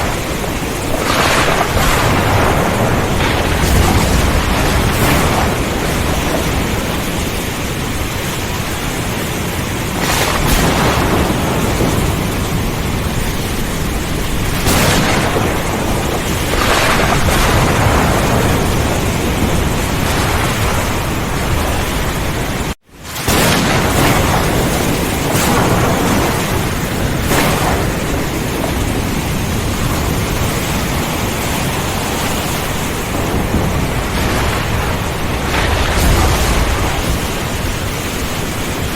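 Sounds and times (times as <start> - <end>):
heavy rain: 0.0 - 38.9
rumbling thunder: 0.0 - 38.9.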